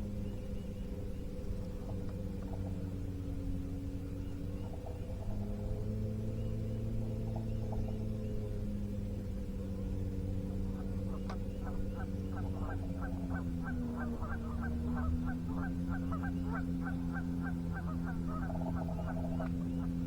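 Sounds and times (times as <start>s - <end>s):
low hum: 0.0s - 20.0s
geese honking: 10.7s - 20.0s.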